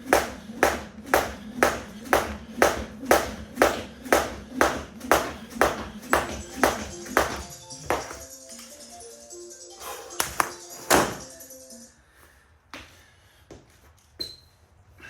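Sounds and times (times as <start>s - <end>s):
jump rope slapping the floor: 0.0s - 8.2s, 10.2s - 11.3s.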